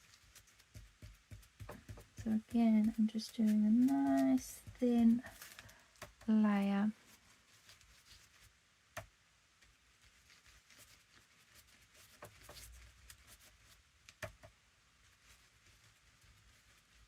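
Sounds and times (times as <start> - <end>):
light handling ticks: 0.0 - 6.4
soft rustle: 0.0 - 17.0.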